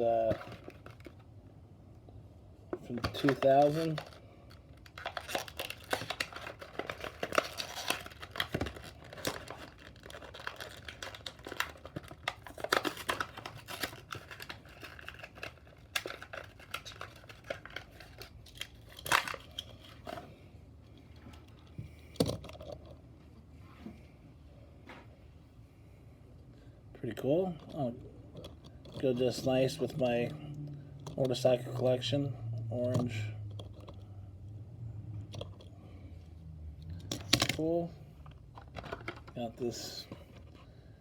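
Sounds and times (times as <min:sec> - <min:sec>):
plastic packaging crinkling: 0:00.1 - 0:01.3, 0:02.8 - 0:20.3.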